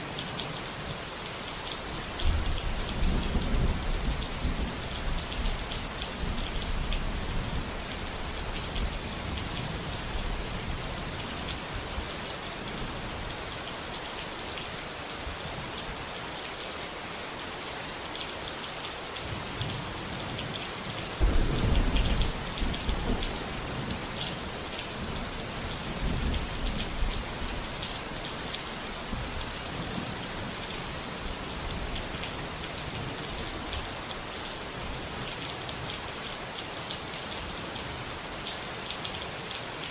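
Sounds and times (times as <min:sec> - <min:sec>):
heavy rain falling: 0:00.0 - 0:39.9
low rumble of thunder: 0:02.2 - 0:11.1, 0:21.2 - 0:27.9.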